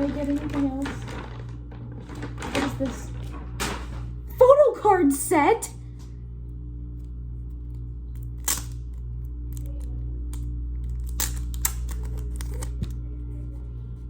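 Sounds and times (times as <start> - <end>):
steady low hum: 0.0 - 14.0
packaging clicks: 8.2 - 13.0.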